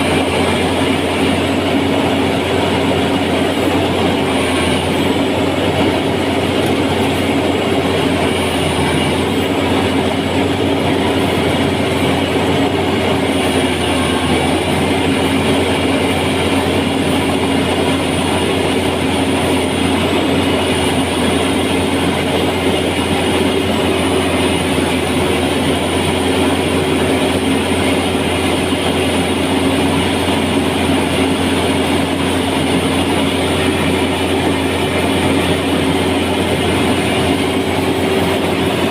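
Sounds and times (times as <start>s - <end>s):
engine running with mechanical clatter: 0.0s - 38.9s.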